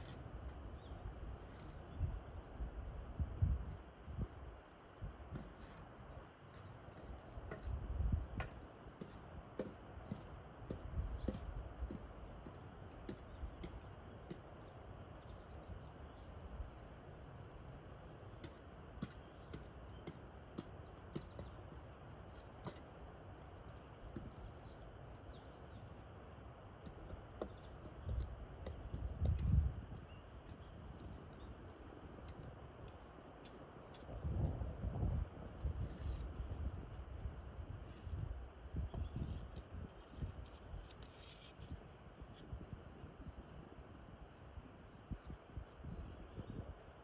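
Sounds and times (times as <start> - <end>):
distant bird chirps: 0.0 - 34.6
leaves rustling in wind: 0.0 - 47.0.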